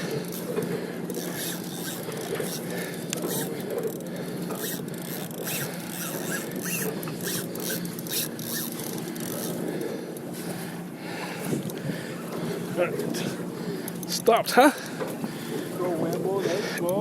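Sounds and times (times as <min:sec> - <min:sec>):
fishing reel clicking: 0:00.0 - 0:09.8.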